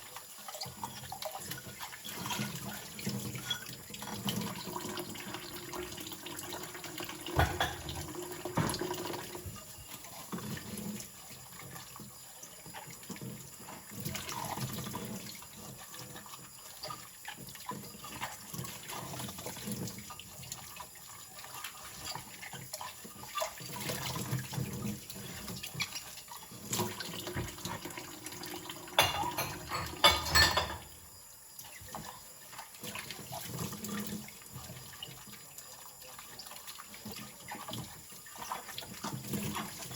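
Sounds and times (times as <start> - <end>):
tap water running into sink: 0.0 - 39.9
sharp knocks of dishes: 7.2 - 9.0, 29.0 - 30.9.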